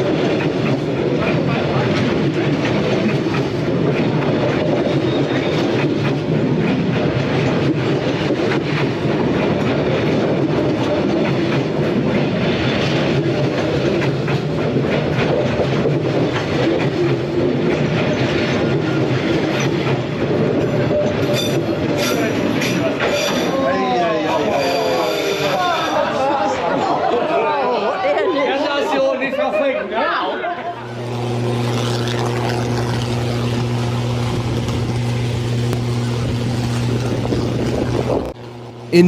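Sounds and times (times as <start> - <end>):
clickety-clack of rail joints: 0.0 - 23.6
train wheels rumbling on rail: 0.0 - 26.1.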